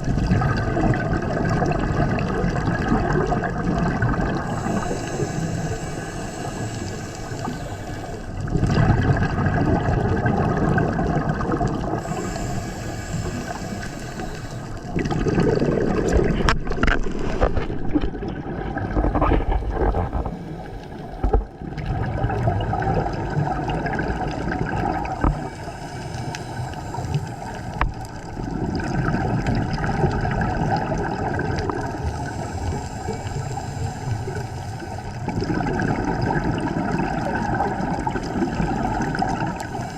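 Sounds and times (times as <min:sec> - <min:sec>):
exhaled bubbles rushing: 0:00.0 - 0:39.9
scuba regulator hissing inhalations: 0:04.2 - 0:08.5, 0:11.8 - 0:15.1, 0:19.4 - 0:21.4, 0:25.0 - 0:28.4, 0:31.9 - 0:35.5, 0:37.8 - 0:39.9.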